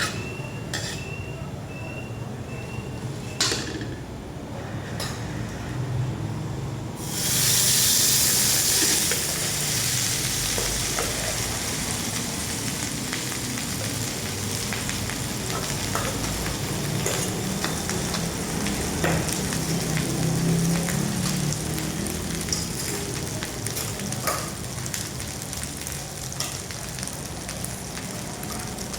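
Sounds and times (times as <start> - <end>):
food sizzling in oiled pan: 7.0 - 28.9.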